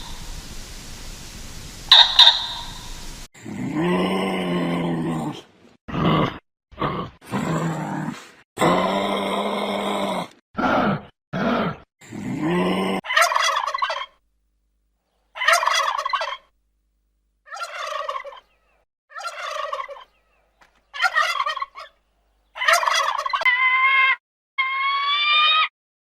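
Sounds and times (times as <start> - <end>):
animal rattling calls: 0.0 - 3.3
steady animal call: 1.9 - 3.3
animal grunting: 3.4 - 13.0.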